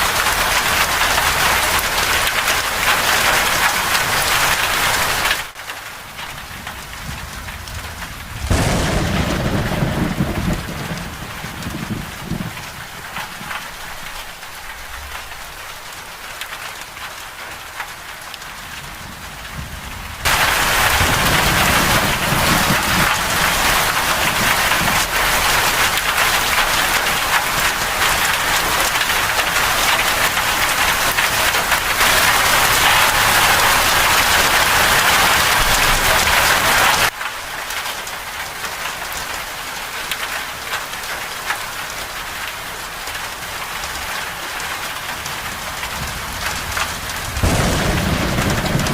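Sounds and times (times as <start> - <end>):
rain falling: 0.0 - 48.9
thunder rumbling: 6.4 - 15.4, 18.8 - 37.1, 45.4 - 48.9.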